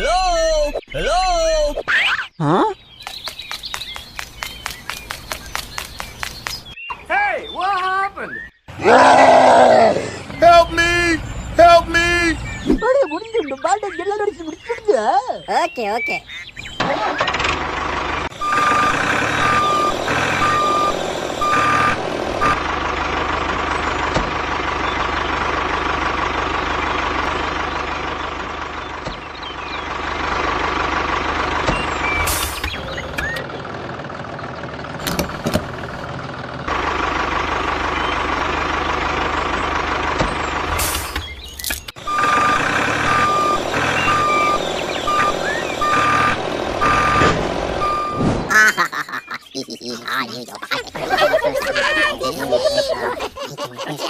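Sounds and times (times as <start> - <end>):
truck engine running: 2.9 - 6.9, 8.7 - 14.8, 16.3 - 54.0
reversing beeper beeps: 18.4 - 22.6, 42.0 - 48.3.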